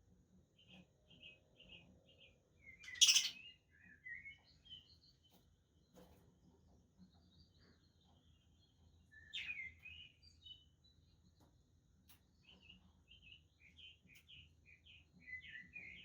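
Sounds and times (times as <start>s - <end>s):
budgerigars chirping: 2.9s - 3.4s.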